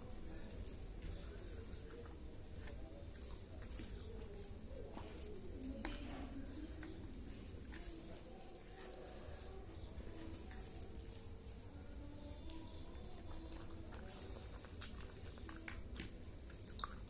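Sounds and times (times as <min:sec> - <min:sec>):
steady low hum: 0:00.0 - 0:17.0
wet chewing and mouth clicks: 0:10.3 - 0:11.5, 0:12.4 - 0:17.0.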